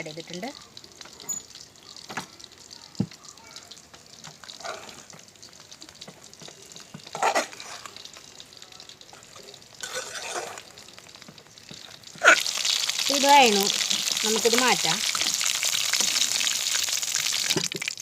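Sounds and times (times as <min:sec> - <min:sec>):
faint sizzle in a pan: 0:00.0 - 0:18.0
scraping strokes in pan: 0:04.5 - 0:05.1.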